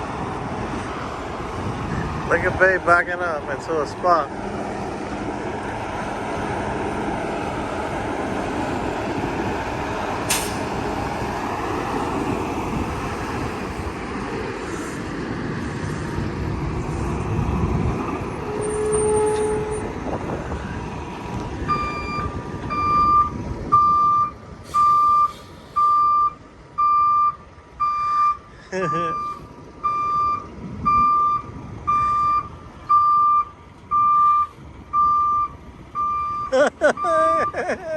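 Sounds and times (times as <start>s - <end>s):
truck diesel engine running: 0.0s - 18.7s
short air hiss: 10.3s - 10.7s
reversing alarm beeping: 21.7s - 28.4s, 29.1s - 37.6s.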